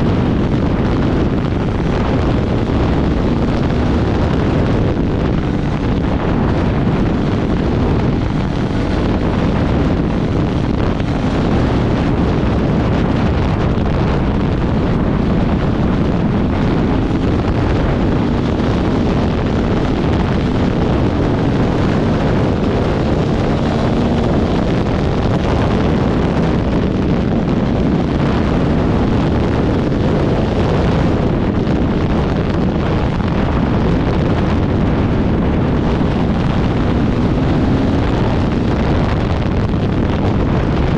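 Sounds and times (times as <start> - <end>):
motorcycle engine running: 0.0 - 40.9
wind buffeting microphone: 0.0 - 40.9.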